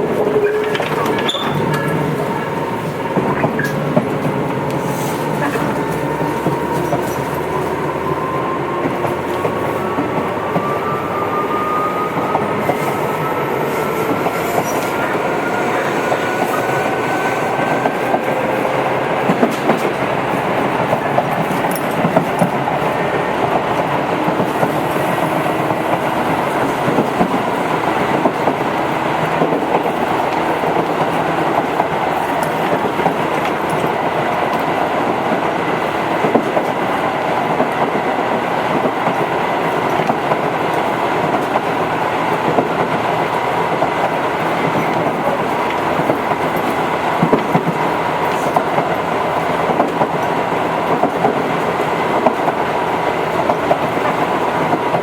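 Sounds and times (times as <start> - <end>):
train wheels rumbling on track: 0.0 - 55.0
clicks over rail joints: 0.2 - 2.1.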